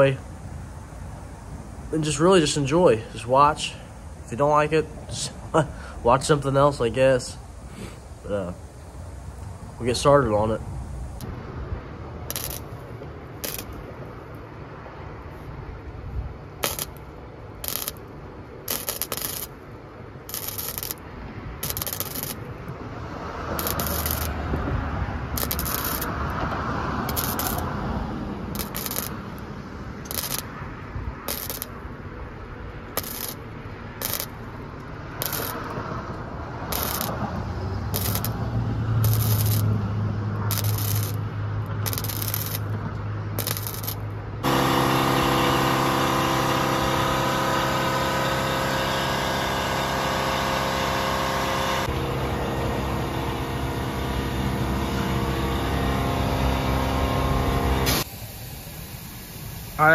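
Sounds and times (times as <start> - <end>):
low hum: 15.8 - 59.1.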